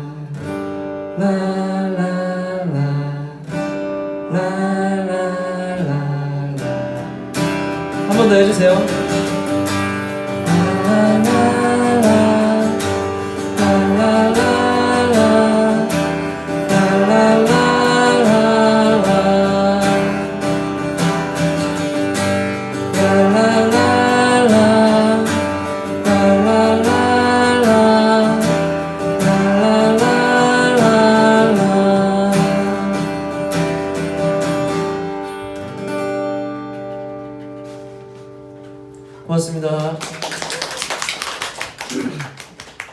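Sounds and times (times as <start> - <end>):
strummed acoustic guitar: 0.0 - 40.0
person singing wordless melody: 1.2 - 3.5, 4.2 - 7.0, 8.0 - 9.1, 10.2 - 20.8, 22.7 - 33.4.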